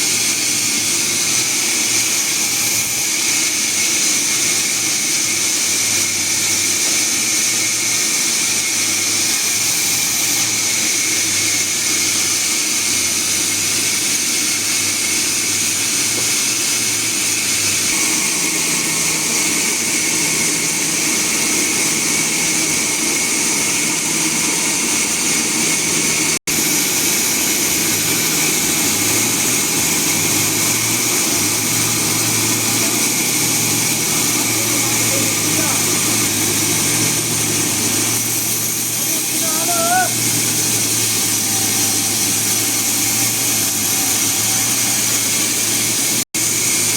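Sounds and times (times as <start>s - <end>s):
loud high hiss: 0.0s - 46.9s
sawmill machinery running: 0.0s - 46.9s
low motor hum: 17.5s - 46.9s.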